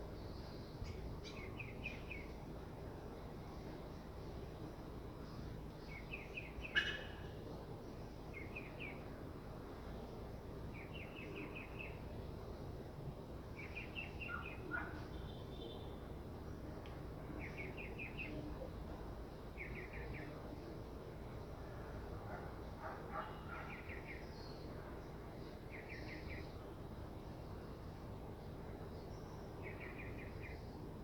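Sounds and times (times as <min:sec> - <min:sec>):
low background noise: 0:00.0 - 0:31.0.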